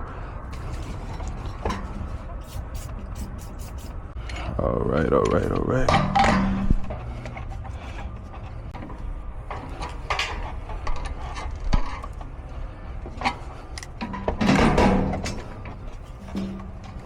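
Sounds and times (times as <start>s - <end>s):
metal tools knocking and clinking: 5.8s - 6.8s.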